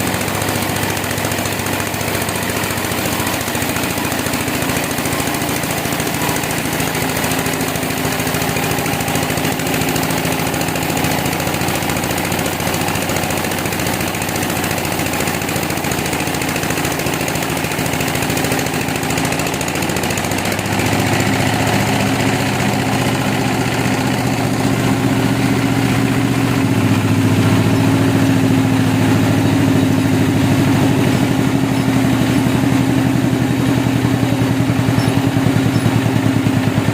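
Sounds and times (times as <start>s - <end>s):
engine running: 0.0s - 36.9s.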